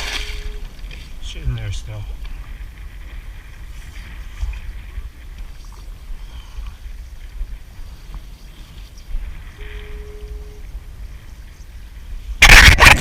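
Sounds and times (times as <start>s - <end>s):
water sounds: 0.0s - 13.0s
wind rumbling on microphone: 0.0s - 13.0s
steady tone: 9.6s - 10.8s.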